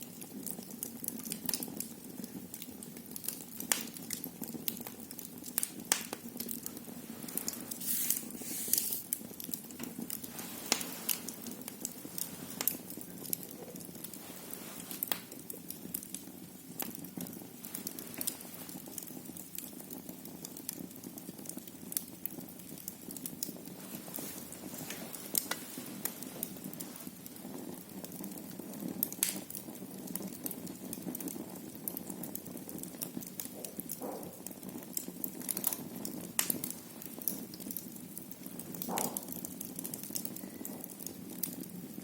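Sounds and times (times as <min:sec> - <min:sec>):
wood fire crackling: 0:00.0 - 0:42.0
brief hiss: 0:07.8 - 0:09.0.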